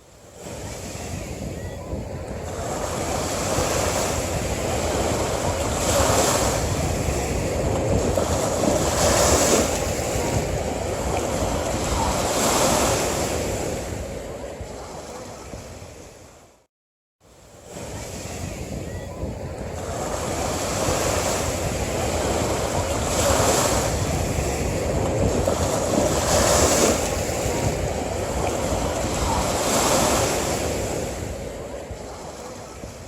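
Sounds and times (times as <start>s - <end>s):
sea waves breaking: 0.0s - 16.7s, 17.3s - 33.0s.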